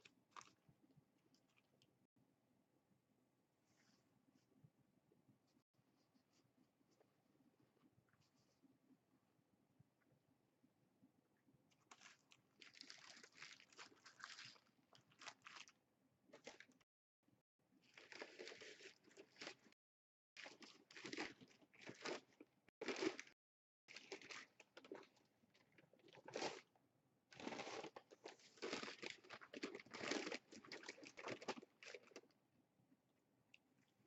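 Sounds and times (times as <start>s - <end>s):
chewing and crunching fried food: 0.0s - 0.7s, 11.7s - 15.8s, 16.4s - 16.8s, 17.8s - 19.8s, 20.4s - 32.4s.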